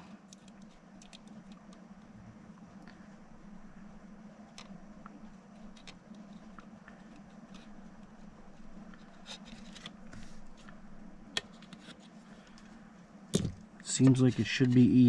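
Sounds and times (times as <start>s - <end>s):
steady low hum: 0.0s - 15.0s
small plastic parts clicking: 0.3s - 2.1s, 4.5s - 8.1s.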